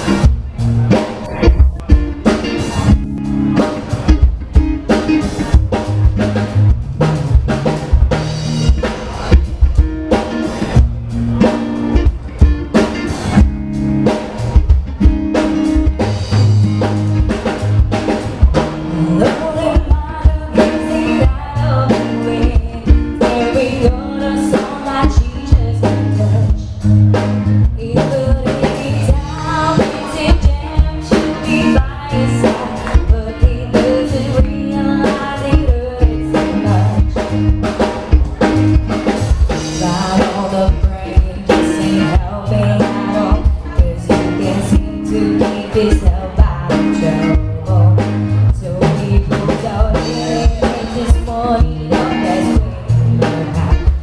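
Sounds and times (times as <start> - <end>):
bass: 0.0 - 54.0
drum kit beat: 0.0 - 54.0
guitar: 0.0 - 54.0
person singing: 18.4 - 27.0, 27.7 - 54.0.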